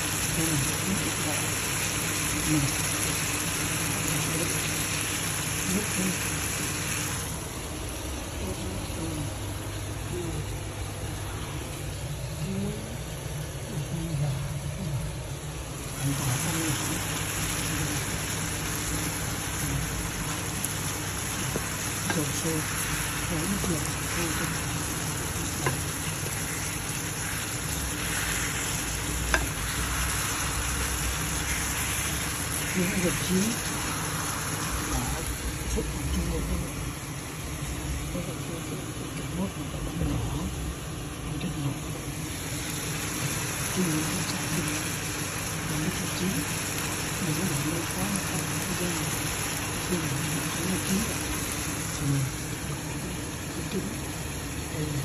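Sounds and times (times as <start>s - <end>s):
meat and onions sizzling in pan: 0.0s - 8.2s, 15.8s - 38.0s, 41.9s - 54.8s
range hood fan humming: 0.0s - 55.0s.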